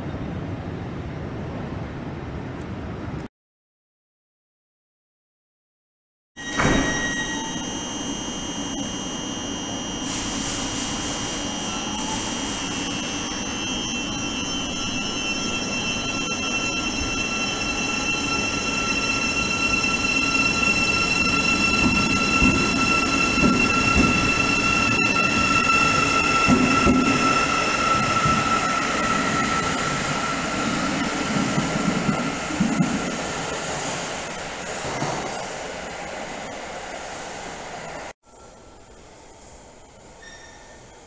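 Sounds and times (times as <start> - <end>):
high-pitched whining: 6.4 - 33.6
train rumble: 10.2 - 38.1.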